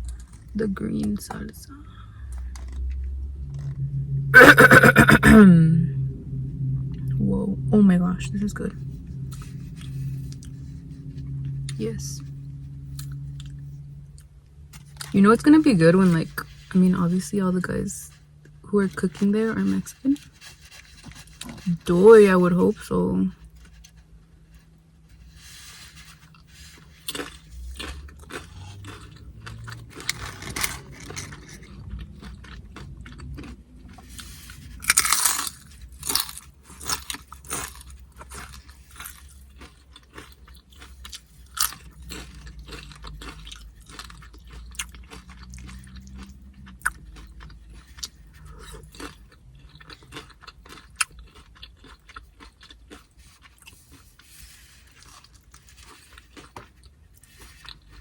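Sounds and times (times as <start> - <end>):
crunching tortilla chips: 24.6 - 58.0.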